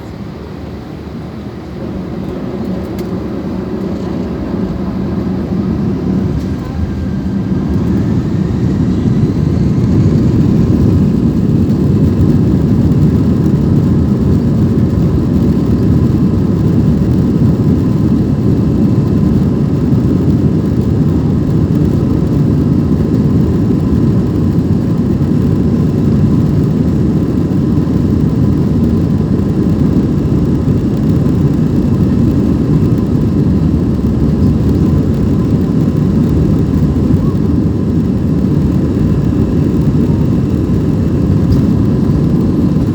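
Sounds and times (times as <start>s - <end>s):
airplane cabin engine rumble: 0.0s - 42.9s.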